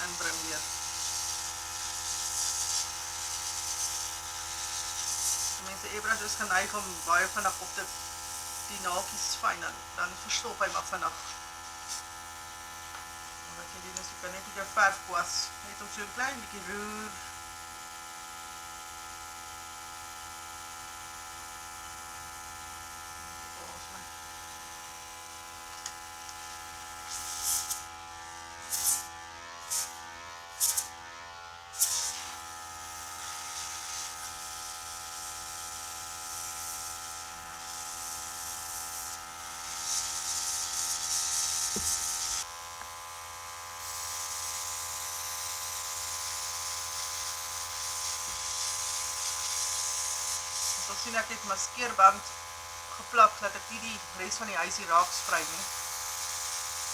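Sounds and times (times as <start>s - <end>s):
airbrush air hissing: 0.0s - 12.1s, 26.5s - 27.9s, 28.6s - 29.1s, 29.7s - 30.0s, 30.6s - 30.9s, 31.8s - 32.4s, 33.0s - 34.8s, 36.5s - 42.5s, 43.8s - 52.2s, 53.8s - 56.9s
air compressor buzzing hum: 0.0s - 56.9s.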